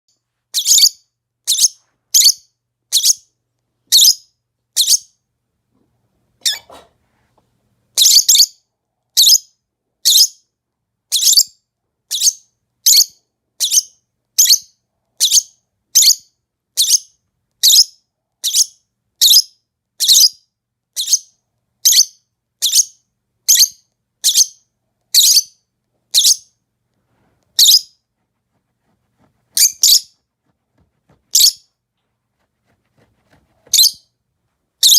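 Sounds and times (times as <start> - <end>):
lovebird chirping: 0.5 - 3.3, 3.9 - 5.1, 6.4 - 6.8, 8.0 - 8.6, 9.2 - 10.4, 11.1 - 20.4, 21.0 - 26.6, 27.6 - 28.0, 29.6 - 30.2, 31.3 - 31.7, 33.7 - 34.2.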